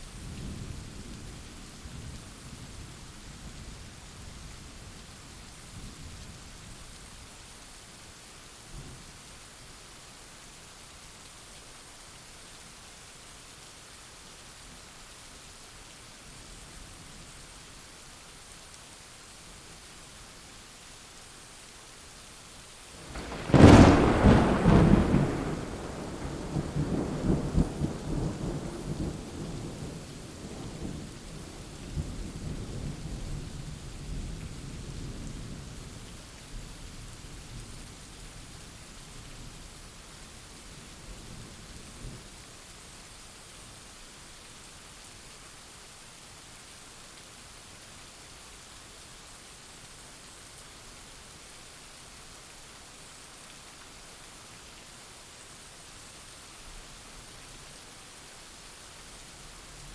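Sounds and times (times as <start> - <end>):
steady rain falling: 0.0 - 59.9
thunder cracking and rumbling: 23.0 - 31.0.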